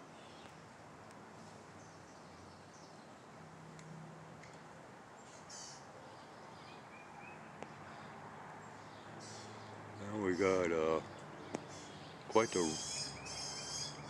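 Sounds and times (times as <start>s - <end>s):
faint outdoor ambience: 0.0s - 14.0s
short high bird calls: 5.2s - 5.9s, 11.6s - 14.0s.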